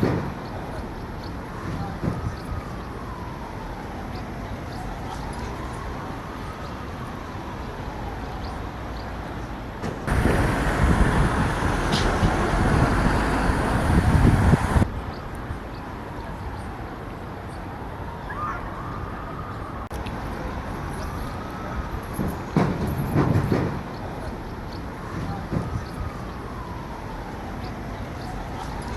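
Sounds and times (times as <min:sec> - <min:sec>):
loud vehicle noise: 0:00.0 - 0:28.9
street traffic noise: 0:00.0 - 0:28.9.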